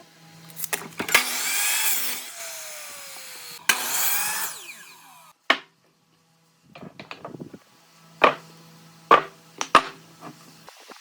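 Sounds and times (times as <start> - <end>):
tool cutting into wood: 0.6 - 5.3.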